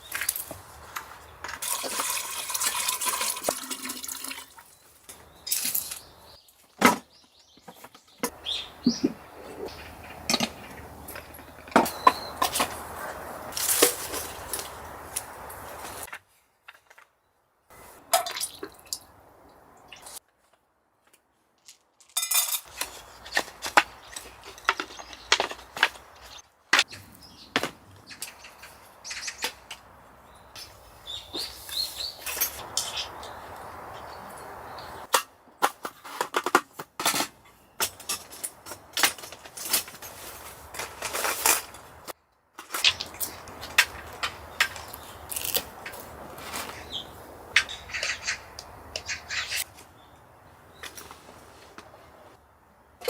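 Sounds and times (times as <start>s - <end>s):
clicks and knocks of handled objects: 21.1s - 26.9s, 35.0s - 46.8s.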